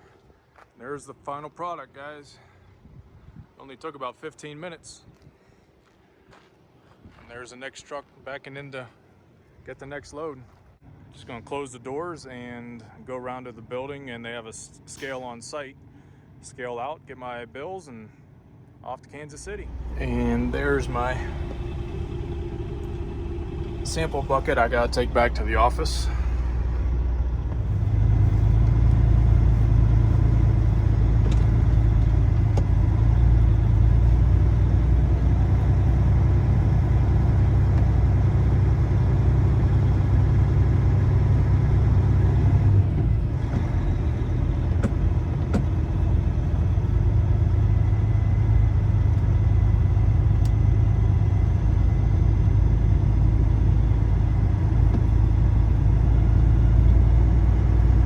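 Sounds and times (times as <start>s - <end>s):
diesel truck engine rumbling: 19.4s - 58.0s.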